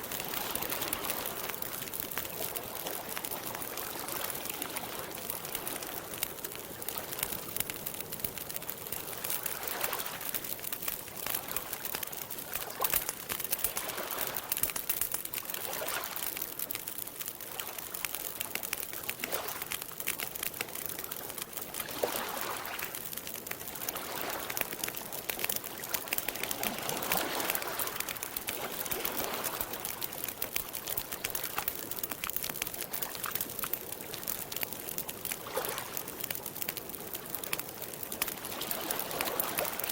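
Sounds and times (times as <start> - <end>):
campfire crackling: 0.0 - 39.9
lake water lapping: 23.7 - 24.8, 25.7 - 31.8, 38.2 - 39.9.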